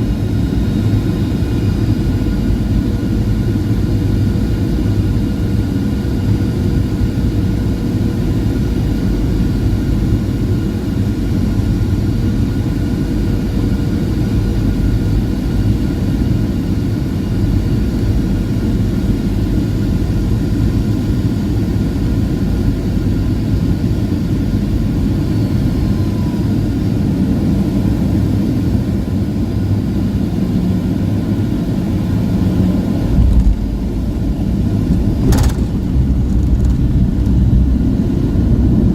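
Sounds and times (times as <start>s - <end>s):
jet engine and airflow rumble: 0.0s - 38.9s
faint whining tones: 24.7s - 27.2s.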